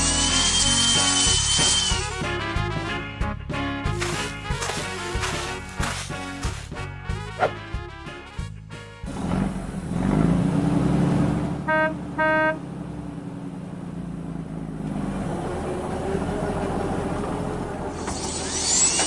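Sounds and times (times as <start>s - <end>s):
vehicle engine revving: 9.0s - 18.1s
car horn beeps: 11.7s - 12.6s.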